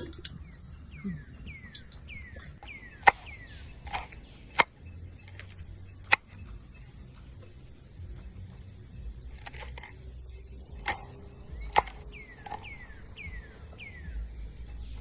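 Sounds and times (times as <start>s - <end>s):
high insect drone: 0.0s - 15.0s
sharp chopping knocks: 2.6s - 6.4s.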